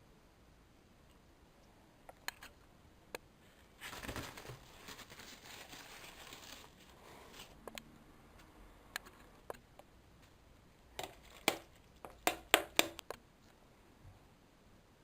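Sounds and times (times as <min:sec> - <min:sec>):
crinkling rustling: 0:03.4 - 0:07.6, 0:11.0 - 0:12.1.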